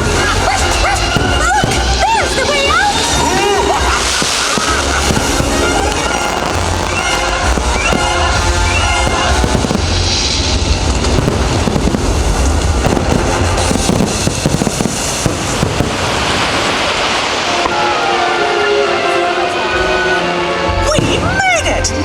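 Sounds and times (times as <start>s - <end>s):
loud show music: 0.0s - 15.7s
fireworks bursting and crackling: 0.0s - 20.2s.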